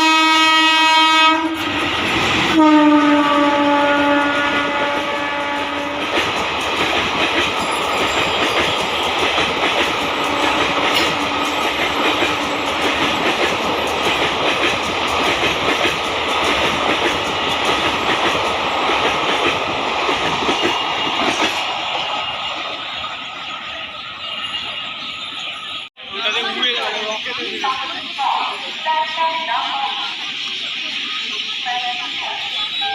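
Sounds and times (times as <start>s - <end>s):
train horn blast: 0.0s - 1.7s, 2.5s - 6.1s, 10.1s - 11.7s
train wheels clattering: 4.0s - 22.0s.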